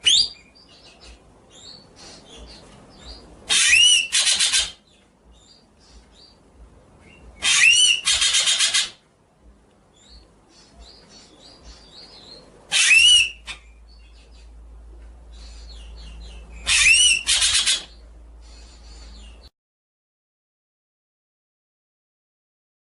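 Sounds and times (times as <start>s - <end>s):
songbird whistle and rattle: 0.0s - 4.8s, 7.0s - 9.0s, 10.9s - 14.5s, 15.4s - 19.5s.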